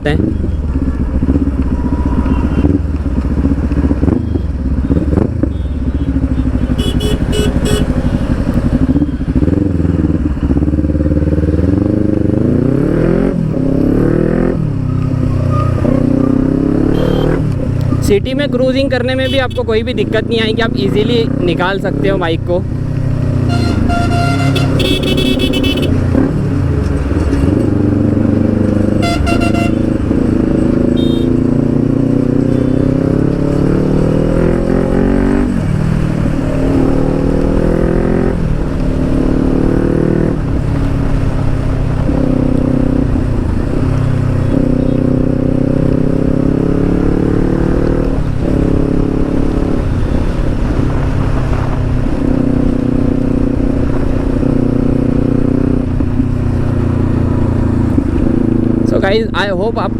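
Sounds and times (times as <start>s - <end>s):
motorcycle engine revving: 0.0s - 59.9s
short horn toots: 5.5s - 8.0s, 16.9s - 17.4s, 23.5s - 26.0s, 29.0s - 29.9s, 30.9s - 31.4s.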